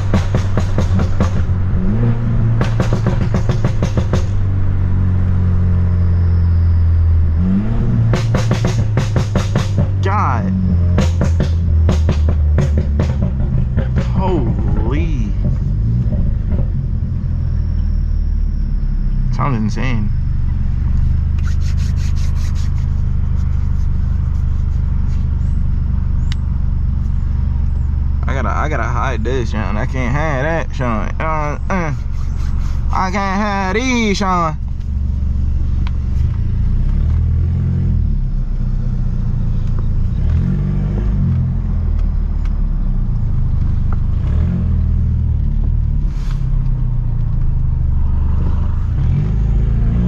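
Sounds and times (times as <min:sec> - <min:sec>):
exhaust pops and bangs: 0:00.0 - 0:04.5, 0:08.0 - 0:10.2, 0:10.8 - 0:17.0
car exhaust droning: 0:00.0 - 0:50.0.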